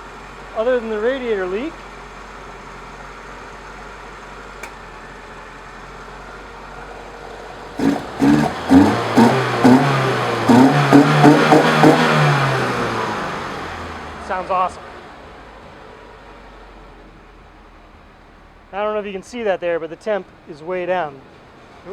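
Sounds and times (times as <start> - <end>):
engine idling quietly: 0.0 - 21.9.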